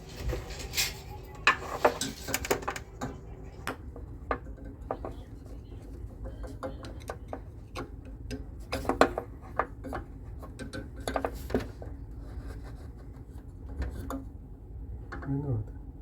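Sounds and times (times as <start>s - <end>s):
hand tools clicking and clattering: 0.0s - 3.2s
steady low hum: 0.0s - 16.0s.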